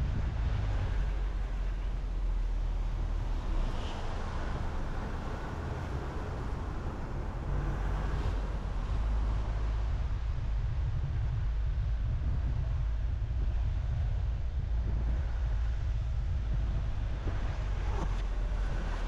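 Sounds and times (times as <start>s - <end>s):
car road noise rumble: 0.0s - 19.0s.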